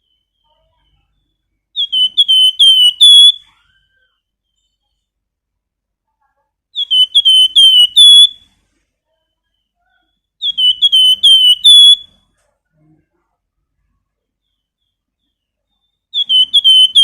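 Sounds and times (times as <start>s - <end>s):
songbird whistled phrases: 0.0s - 4.8s, 6.8s - 8.4s, 9.5s - 12.2s, 14.4s - 17.0s.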